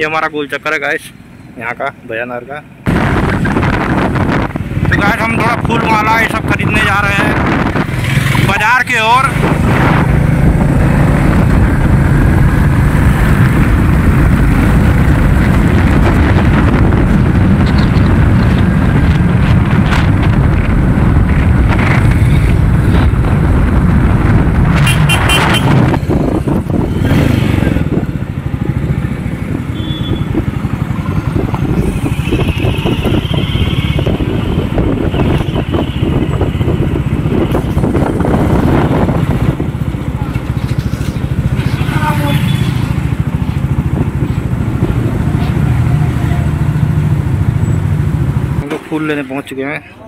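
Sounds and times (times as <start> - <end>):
motorcycle engine running: 9.2 - 48.6.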